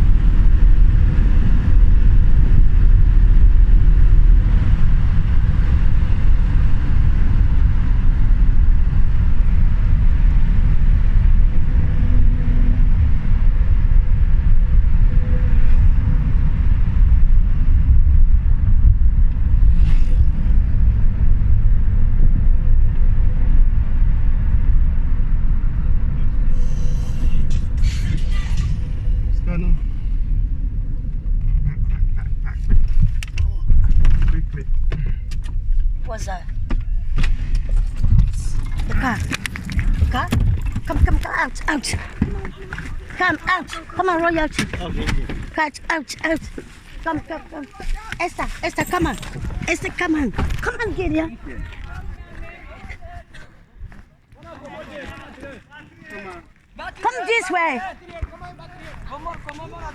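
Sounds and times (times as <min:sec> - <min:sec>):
vehicle road and engine rumble: 0:00.0 - 0:59.9.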